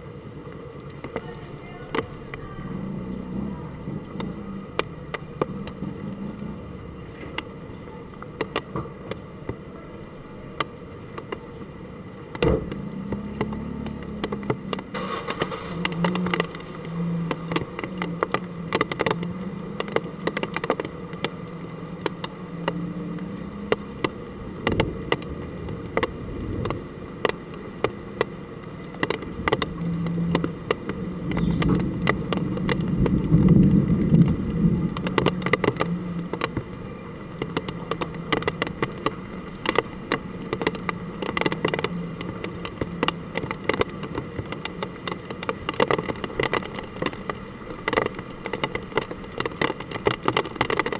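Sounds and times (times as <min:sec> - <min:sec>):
hard rain hissing: 0:14.9 - 0:18.7.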